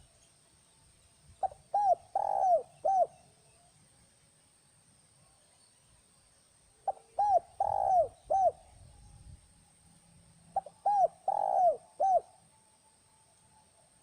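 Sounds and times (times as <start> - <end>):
dove cooing: 1.4 - 3.2, 6.8 - 8.6, 10.6 - 12.4.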